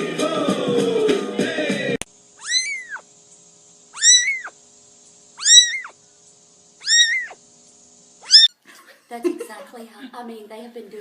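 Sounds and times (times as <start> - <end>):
cat meowing: 2.4 - 3.0, 4.0 - 4.6, 5.4 - 6.0, 6.8 - 7.4, 8.2 - 8.5.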